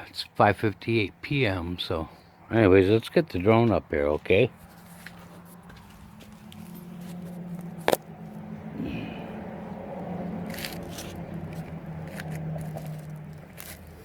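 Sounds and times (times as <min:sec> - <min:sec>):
rustling and scraping: 0:04.5 - 0:08.4, 0:10.4 - 0:14.0.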